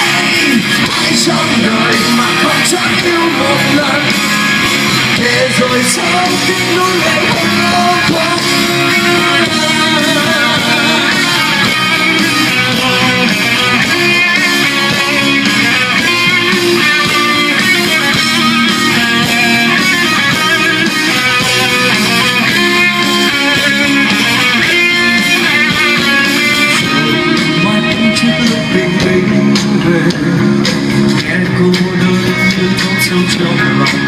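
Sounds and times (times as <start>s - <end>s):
electric guitar: 0.0s - 34.0s
rock band playing live: 0.0s - 34.0s.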